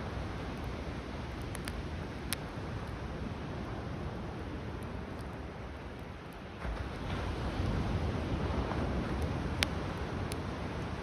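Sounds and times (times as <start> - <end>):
campfire crackles: 0.0 - 11.0
wind: 0.0 - 11.0
waves: 6.4 - 11.0.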